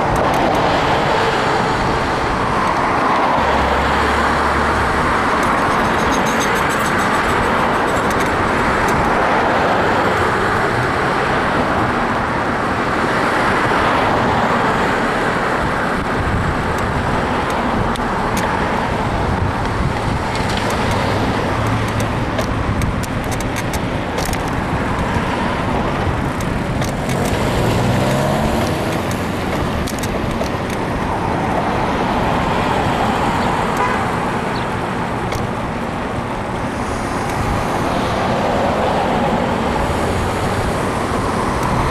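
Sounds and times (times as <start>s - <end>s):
road traffic passing: 0.0s - 41.9s
wind noise: 0.0s - 41.9s
vehicle engine accelerating: 25.1s - 33.4s.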